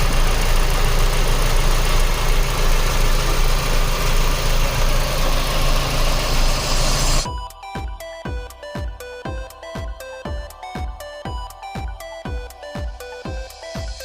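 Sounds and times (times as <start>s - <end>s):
car engine idling: 0.0s - 7.3s.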